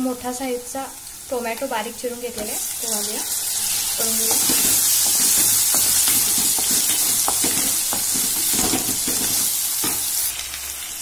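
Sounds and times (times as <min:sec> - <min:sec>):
vegetables sizzling in oil: 0:00.0 - 0:11.0
spatula scraping and tapping pan: 0:04.1 - 0:10.1.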